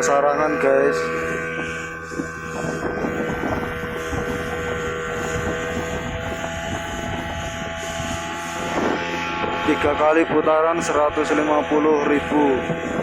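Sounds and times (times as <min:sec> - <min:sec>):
speedboat engine droning: 0:00.0 - 0:13.0.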